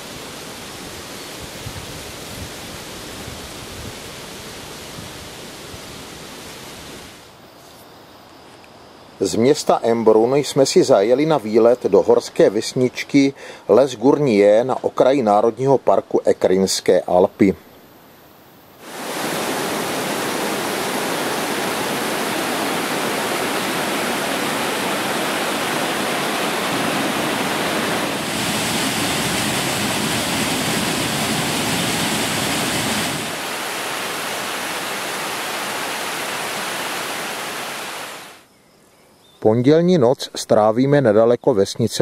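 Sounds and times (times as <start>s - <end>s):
falling water rushing: 0.0s - 7.3s, 18.8s - 38.4s.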